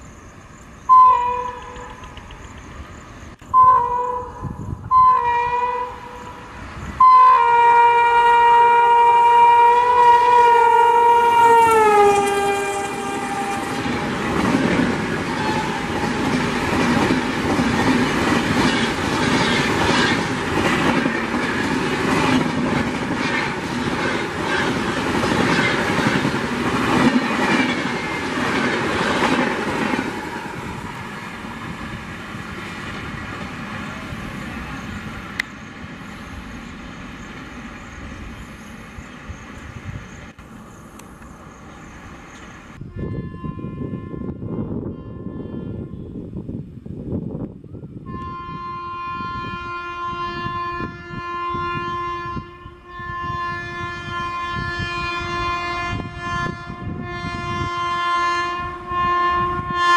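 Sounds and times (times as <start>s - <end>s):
train coaches rushing past: 0.0s - 42.8s
steady train rumble: 0.0s - 59.9s
locomotive horn: 0.9s - 2.0s, 3.4s - 14.5s, 15.2s - 16.4s, 42.8s - 46.2s, 48.0s - 59.9s
wheels clacking over rail joints: 12.0s - 31.7s.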